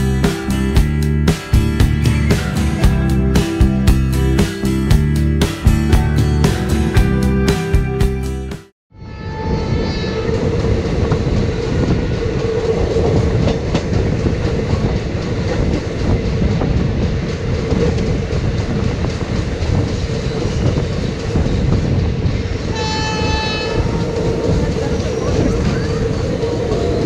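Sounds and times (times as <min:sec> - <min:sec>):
train wheels clacking over rails: 0:10.6 - 0:27.0.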